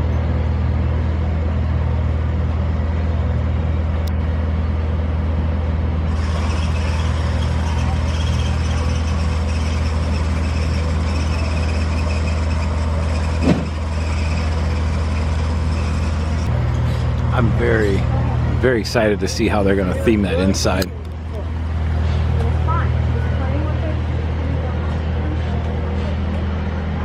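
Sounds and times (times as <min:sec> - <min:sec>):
machinery engine humming: 0:00.0 - 0:27.0
short thump: 0:13.4 - 0:13.8.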